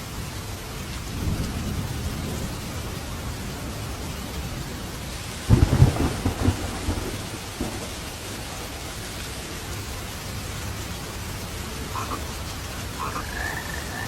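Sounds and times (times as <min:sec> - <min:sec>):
steady rain: 0:00.0 - 0:14.0
thunderclap rolling rumbles: 0:01.0 - 0:10.2.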